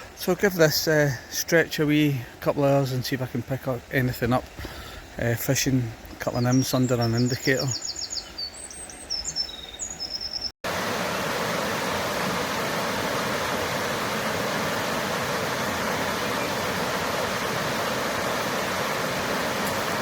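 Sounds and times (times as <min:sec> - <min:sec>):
small bird chirping: 0:06.3 - 0:10.6
river water rushing: 0:10.7 - 0:20.0.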